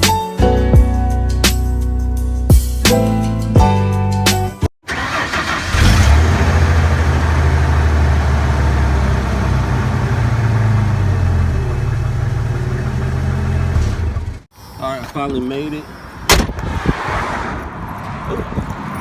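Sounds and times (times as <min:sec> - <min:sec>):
background music: 0:00.0 - 0:04.7
pickup truck engine droning: 0:04.9 - 0:14.5.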